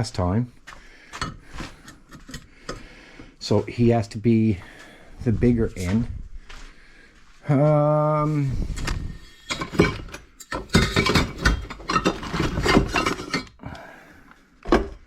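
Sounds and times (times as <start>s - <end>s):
metal pipes clanking together: 1.2s - 2.9s, 8.7s - 13.8s.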